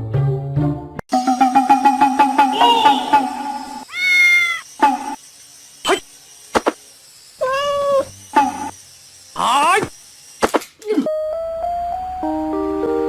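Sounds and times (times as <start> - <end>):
cat meowing: 3.8 - 4.6.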